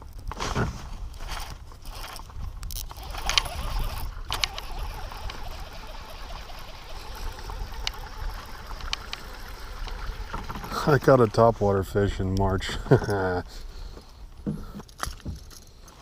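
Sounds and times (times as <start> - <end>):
fishing gear clicking and knocking: 1.3 - 11.4, 14.4 - 16.0.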